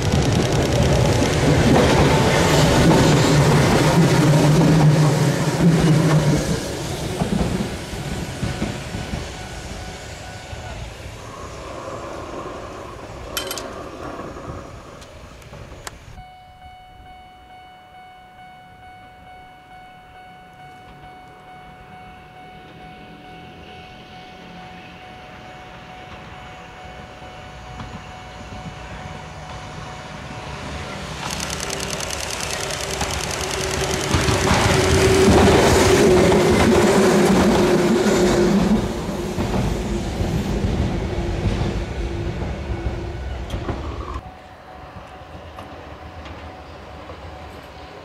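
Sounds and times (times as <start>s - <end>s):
electric train approaching: 0.0s - 48.0s
steady ringing tone: 8.5s - 10.8s, 16.2s - 35.2s.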